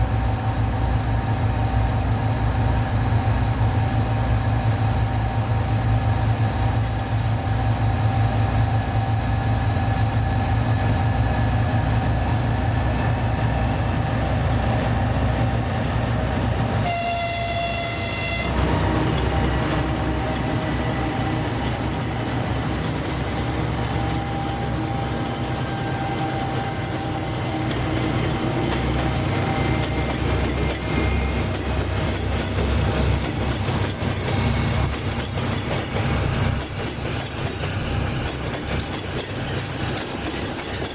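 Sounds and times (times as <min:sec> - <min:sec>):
train rumble: 0:00.0 - 0:40.9
train wheel clatter: 0:04.5 - 0:40.9
train horn: 0:16.7 - 0:20.4.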